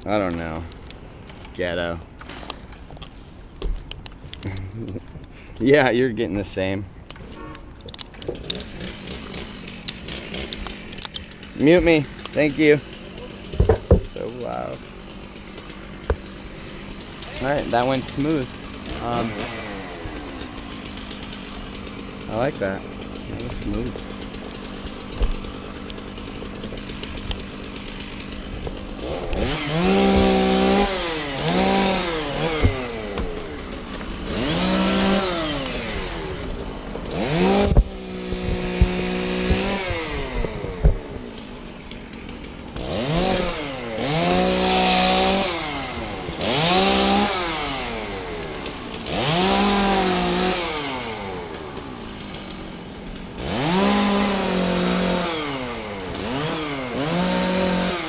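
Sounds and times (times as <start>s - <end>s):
chainsaw revving: 4.3s - 58.0s
sharp knocks: 13.5s - 14.2s, 16.0s - 16.3s, 29.4s - 33.5s, 37.2s - 41.2s.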